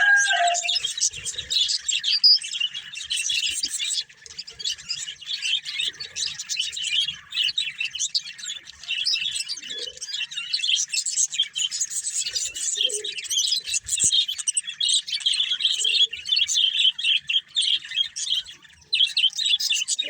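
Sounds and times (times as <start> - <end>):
budgerigars chirping: 0.0 - 20.0.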